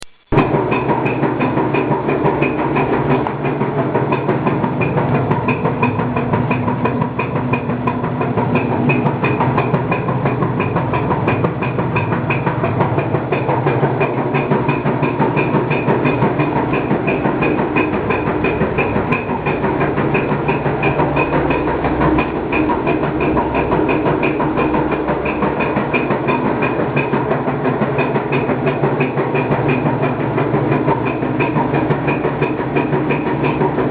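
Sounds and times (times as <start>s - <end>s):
fast regular clicking: 0.0s - 33.9s
washing machine humming: 0.0s - 33.9s.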